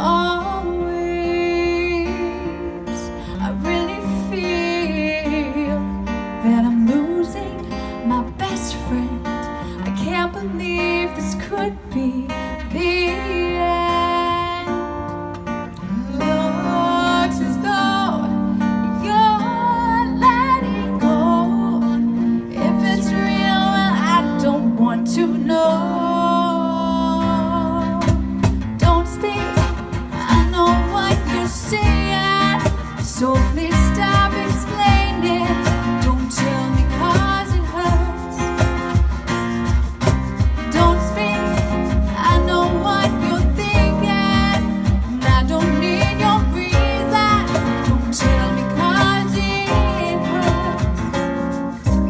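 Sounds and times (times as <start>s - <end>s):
strummed acoustic guitar: 0.0s - 52.0s
person singing: 19.4s - 38.9s, 40.4s - 51.3s.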